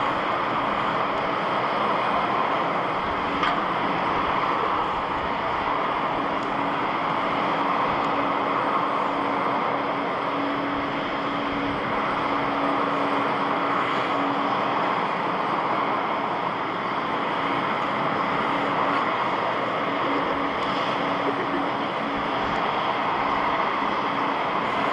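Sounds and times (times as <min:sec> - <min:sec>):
jet engines running: 0:00.0 - 0:24.9.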